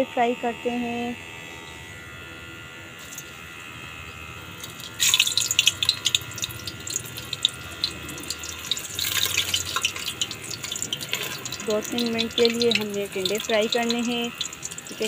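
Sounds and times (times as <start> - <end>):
vegetables sizzling in hot oil: 4.5 - 15.0.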